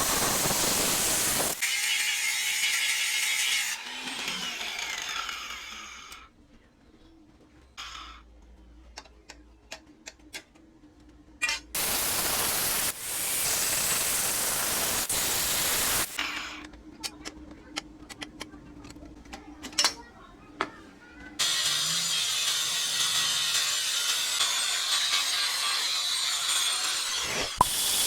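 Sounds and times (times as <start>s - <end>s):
loud hiss: 0.0s - 1.6s, 11.8s - 16.2s, 27.1s - 28.0s.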